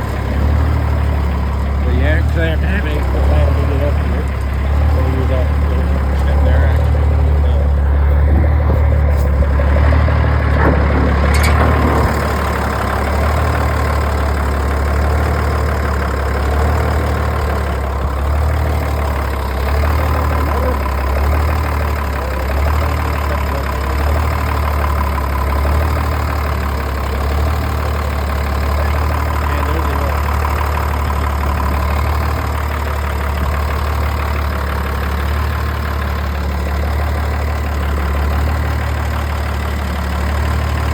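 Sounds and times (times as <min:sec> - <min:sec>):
diesel engine idling loudly: 0:00.0 - 0:40.9.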